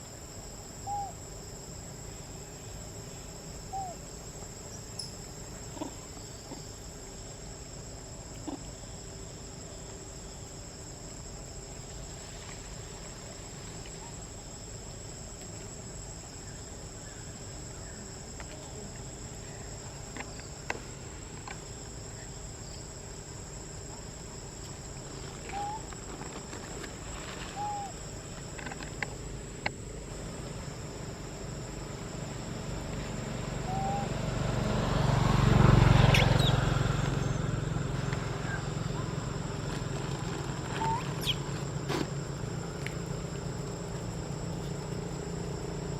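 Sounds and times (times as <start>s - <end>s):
insect chorus: 0.0s - 45.9s
low engine rumble: 24.7s - 45.9s.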